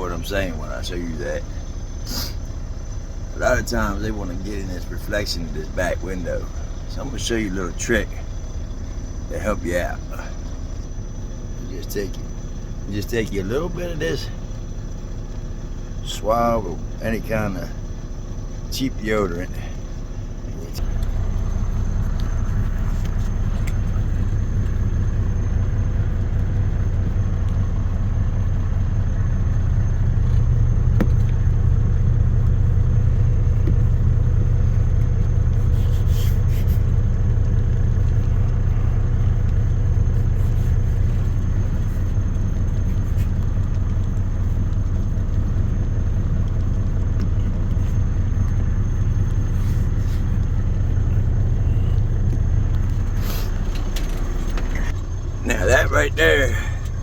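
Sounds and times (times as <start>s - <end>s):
diesel truck engine rumbling: 0.0s - 57.0s
faint clicks: 32.4s - 55.0s.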